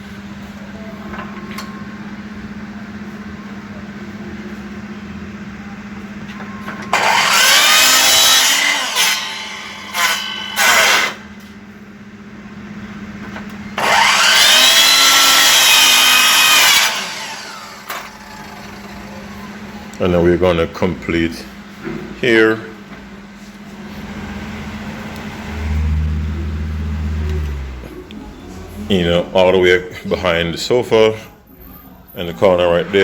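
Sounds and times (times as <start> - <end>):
electric power saw cutting: 6.9 - 11.4, 13.8 - 19.7.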